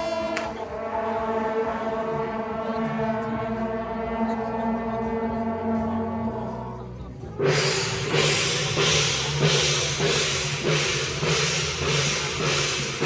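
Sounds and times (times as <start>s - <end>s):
low steady tone: 0.0s - 8.1s
drums and cymbals beating: 0.0s - 13.0s.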